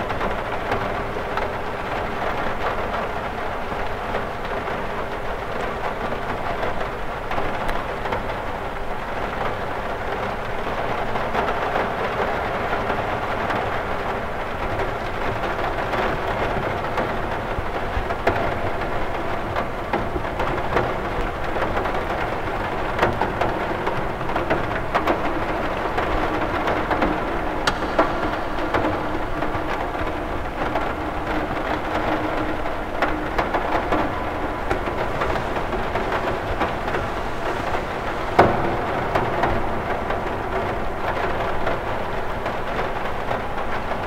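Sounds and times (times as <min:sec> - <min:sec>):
rain hissing: 0:00.0 - 0:44.0
raindrops ticking on glass: 0:00.0 - 0:44.0
low rumble: 0:23.6 - 0:43.5.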